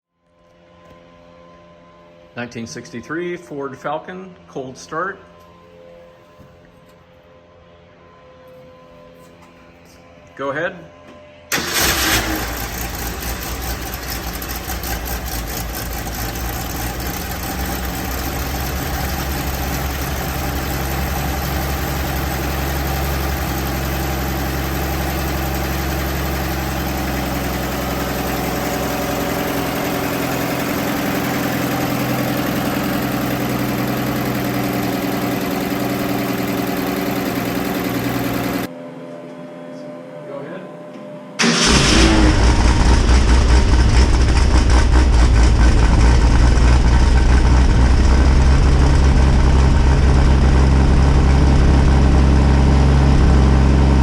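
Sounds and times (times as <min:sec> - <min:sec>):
car engine idling: 0:11.5 - 0:38.7, 0:41.4 - 0:54.0.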